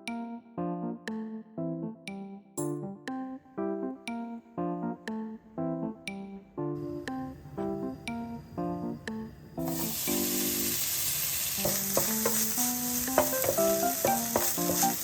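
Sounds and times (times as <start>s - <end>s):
background music with keyboard: 0.0s - 10.9s, 11.6s - 15.0s
food sizzling in a pan: 9.6s - 15.0s.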